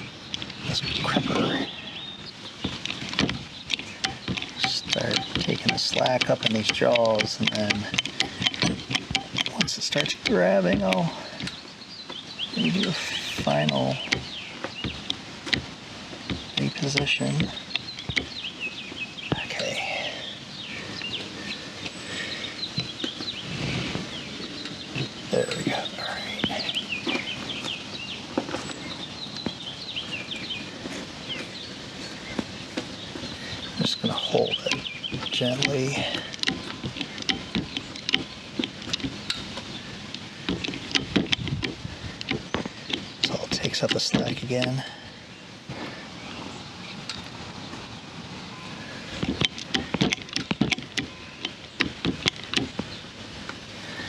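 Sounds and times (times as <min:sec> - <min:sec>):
birds chirping falling notes: 0:00.0 - 0:54.0
sharp clicks: 0:02.6 - 0:18.5, 0:33.6 - 0:44.9.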